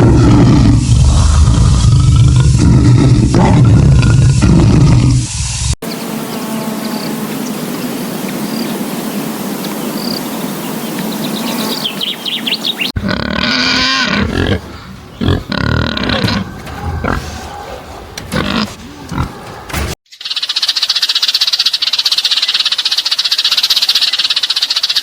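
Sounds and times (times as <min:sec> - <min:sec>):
large animal growling and roaring: 0:00.0 - 0:05.4, 0:13.0 - 0:19.7
insect chirps: 0:05.8 - 0:13.0, 0:20.1 - 0:25.0.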